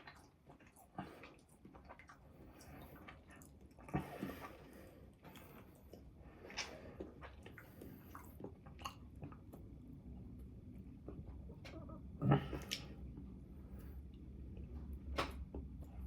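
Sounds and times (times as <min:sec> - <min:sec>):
person chewing with mouth smacks: 0:00.0 - 0:09.8, 0:11.0 - 0:13.0.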